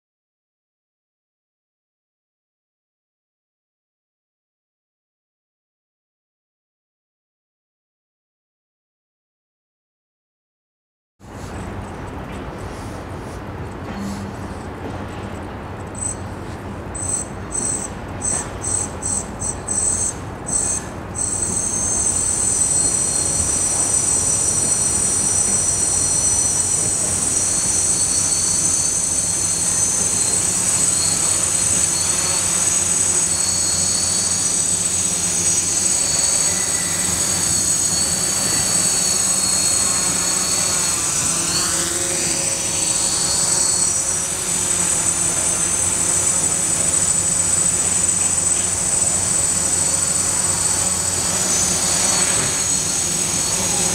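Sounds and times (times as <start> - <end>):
drone motors whining: 11.3 - 53.9.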